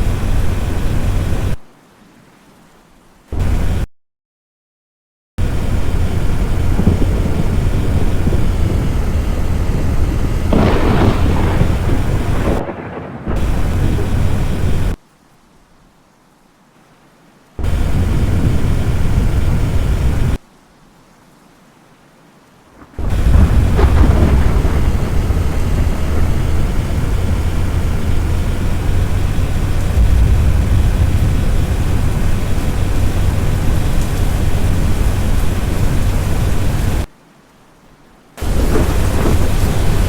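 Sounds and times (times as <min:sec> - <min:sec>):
deep steady rumble: 0:00.0 - 0:01.6, 0:05.4 - 0:15.0, 0:17.6 - 0:20.4, 0:22.8 - 0:37.1, 0:38.4 - 0:40.0
heavy rain: 0:00.0 - 0:03.9, 0:05.4 - 0:40.0
thunder crackle: 0:05.4 - 0:15.0, 0:17.6 - 0:20.4, 0:22.8 - 0:37.1, 0:38.4 - 0:40.0.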